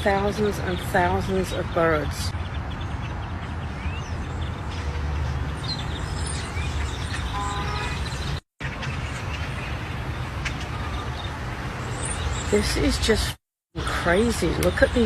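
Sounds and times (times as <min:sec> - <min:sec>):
flock of birds chirping: 0:00.0 - 0:15.0
horn-like tone: 0:07.3 - 0:08.1.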